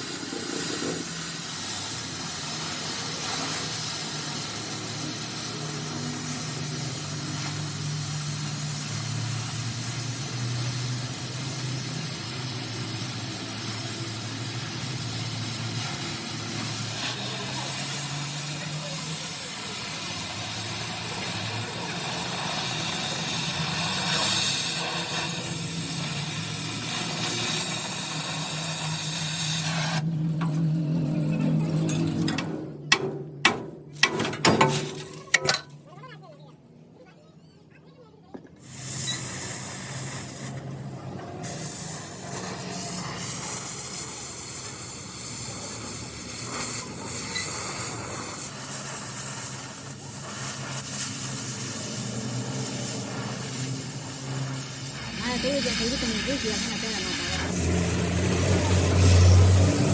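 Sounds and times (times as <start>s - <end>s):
steady hiss: 0.0s - 30.0s
low motor hum: 55.0s - 59.9s.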